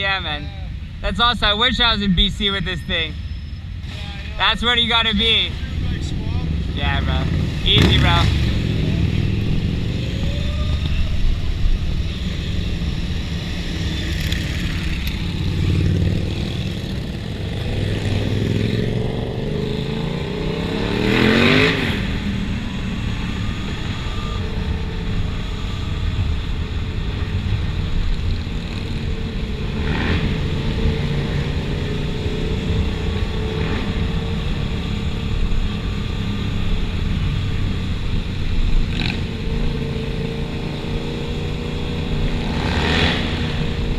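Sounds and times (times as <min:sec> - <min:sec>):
motorcycle engines in traffic: 0:00.0 - 0:43.9
motorcycle revving hard: 0:06.2 - 0:10.5, 0:13.6 - 0:23.5, 0:28.6 - 0:35.0, 0:38.8 - 0:43.9.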